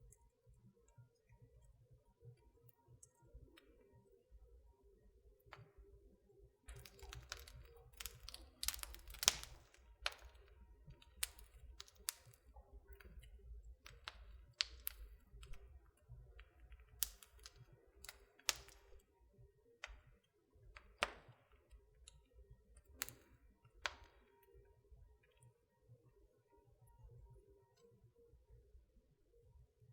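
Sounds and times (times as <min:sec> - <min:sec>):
wood fire crackling: 0:06.7 - 0:19.2, 0:19.8 - 0:24.7.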